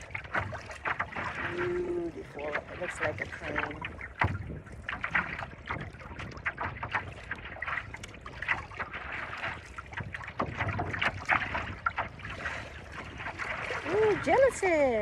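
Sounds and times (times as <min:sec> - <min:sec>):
water slapping against paddleboard: 0:00.0 - 0:15.0
wind rumbling on microphone: 0:00.0 - 0:15.0.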